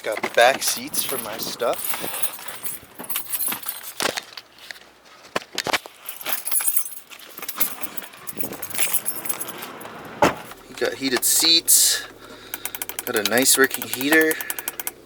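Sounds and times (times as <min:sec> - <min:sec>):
keys jingling: 0:00.0 - 0:04.5, 0:05.9 - 0:15.0
clicks and knocks: 0:12.5 - 0:15.0.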